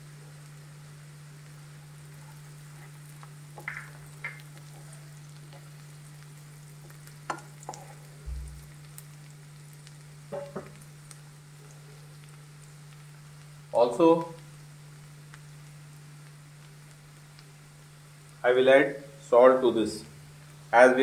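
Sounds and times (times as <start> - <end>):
onions sizzling in oil: 0.0 - 21.0
steady low hum: 0.0 - 21.0
spatula scraping and tapping pan: 6.8 - 8.1.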